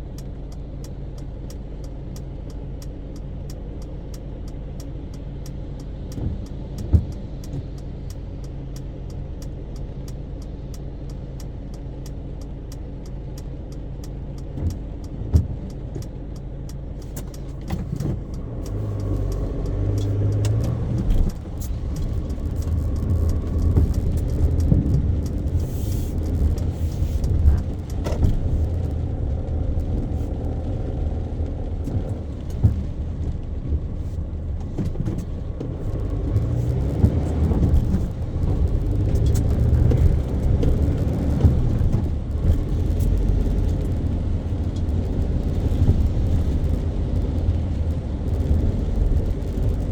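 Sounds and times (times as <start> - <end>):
car engine and road rumble: 0.0 - 49.9
sharp clicks: 11.1 - 31.0.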